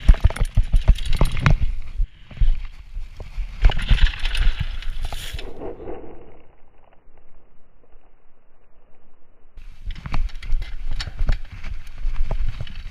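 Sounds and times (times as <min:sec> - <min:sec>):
mountain bike rattling and knocking: 0:00.0 - 0:02.0, 0:03.5 - 0:05.1, 0:09.6 - 0:12.9
wind buffeting microphone: 0:03.4 - 0:06.6.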